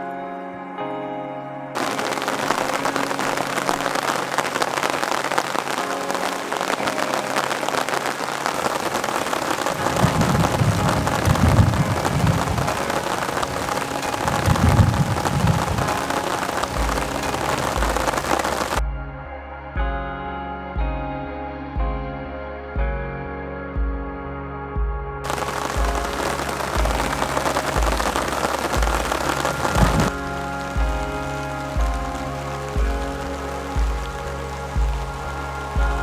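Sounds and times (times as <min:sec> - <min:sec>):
heavy rain falling: 0:01.8 - 0:18.8, 0:25.3 - 0:36.0
thunder rumbling: 0:01.8 - 0:18.8, 0:25.3 - 0:36.0.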